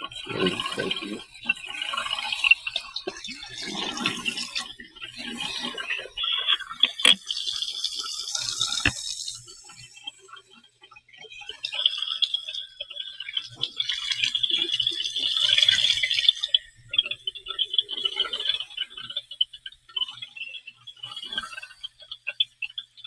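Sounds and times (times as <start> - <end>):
running water splashing: 0.3 - 9.7.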